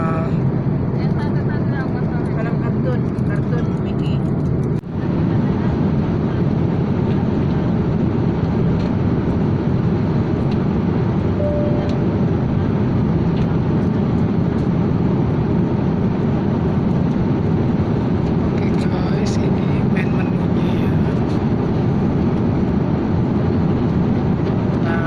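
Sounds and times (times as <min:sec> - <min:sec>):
airliner cabin noise: 0:00.0 - 0:25.0
soft tone: 0:11.4 - 0:12.6.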